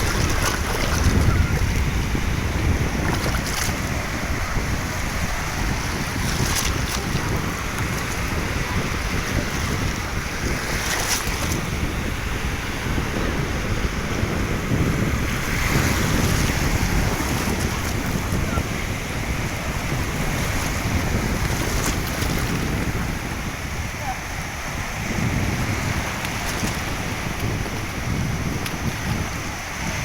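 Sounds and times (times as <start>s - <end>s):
water rushing: 0.0s - 30.0s
wind buffeting microphone: 0.0s - 30.0s
wind rushing: 0.0s - 30.0s.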